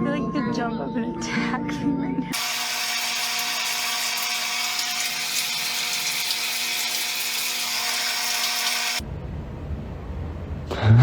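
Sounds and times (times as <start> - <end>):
small electric motor whirring: 2.3 - 9.0.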